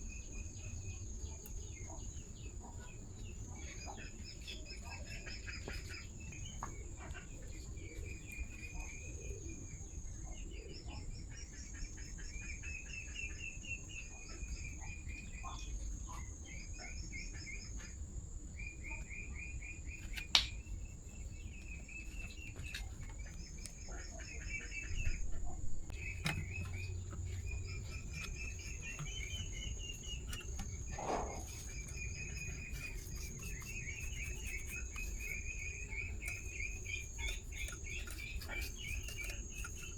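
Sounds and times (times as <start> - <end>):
insects chirping in trills: 0.0 - 39.9.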